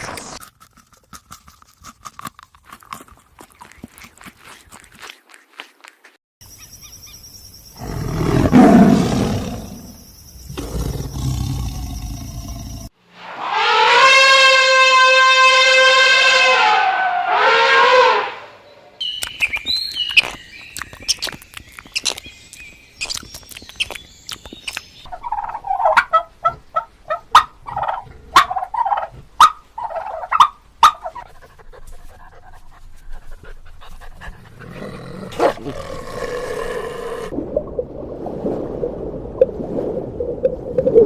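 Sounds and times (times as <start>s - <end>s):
high chirping with clicks: 19.0s - 25.5s.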